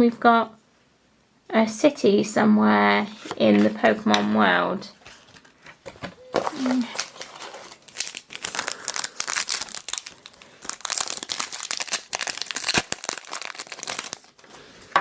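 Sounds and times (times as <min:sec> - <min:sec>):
foil wrapper crinkling and tearing: 0:06.4 - 0:14.6.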